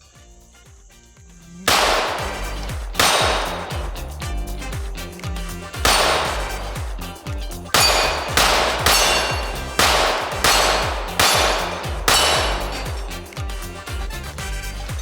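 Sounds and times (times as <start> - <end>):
background music: 0.0 - 15.0
pistol shots: 1.7 - 4.3, 5.7 - 13.6
steel plates clanging: 1.7 - 15.0.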